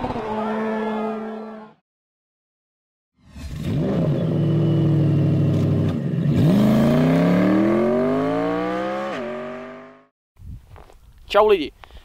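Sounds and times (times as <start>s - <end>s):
car engine accelerating: 3.4s - 10.1s.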